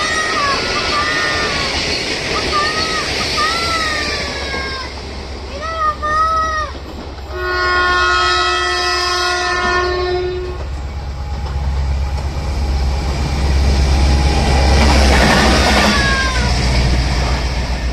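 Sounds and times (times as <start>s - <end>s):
rumble of passing train: 0.0s - 17.9s
train horn chord: 7.3s - 10.7s.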